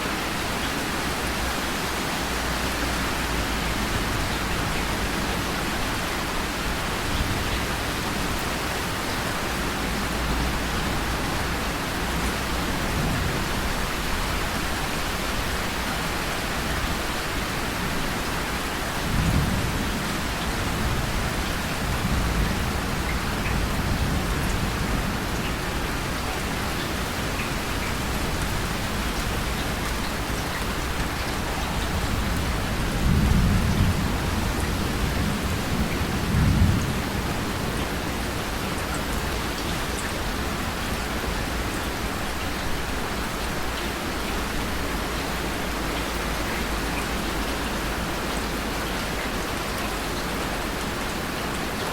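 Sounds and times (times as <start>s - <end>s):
steady rain: 0.0s - 51.9s
low rolls of thunder: 31.7s - 38.6s.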